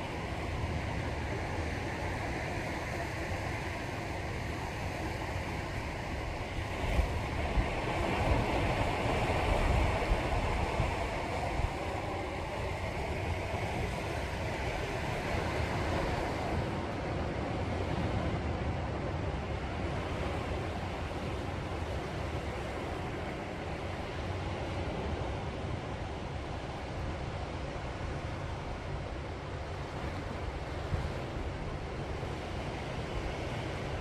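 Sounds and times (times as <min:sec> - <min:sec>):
low wind rumble on microphone: 0:00.0 - 0:34.0
sea waves washing onto shore: 0:00.0 - 0:34.0.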